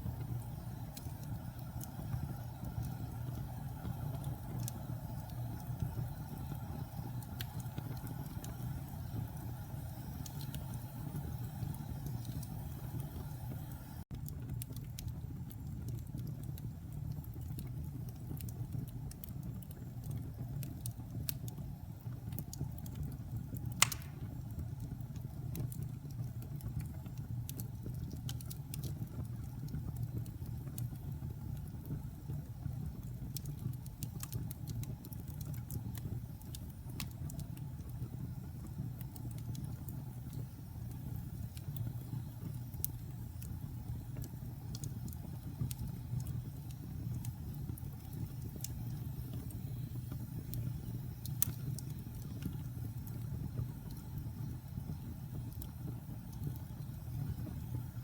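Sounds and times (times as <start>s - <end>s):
wood fire crackling: 0.0s - 58.0s
sharp pop of fire: 23.8s - 24.4s.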